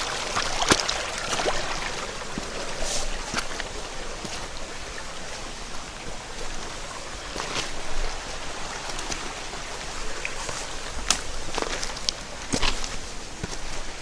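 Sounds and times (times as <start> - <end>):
water splash: 0.0 - 4.7
stream flowing over rocks: 0.0 - 14.0.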